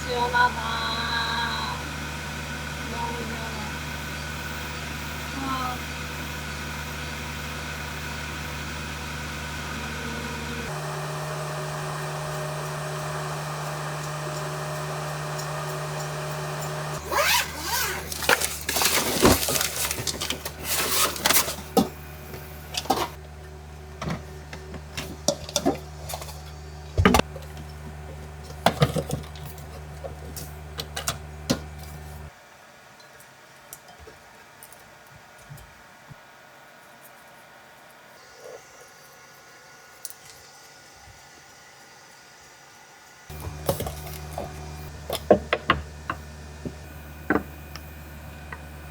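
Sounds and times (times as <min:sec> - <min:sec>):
vehicle engine idling: 0:00.0 - 0:32.3, 0:43.3 - 0:48.9.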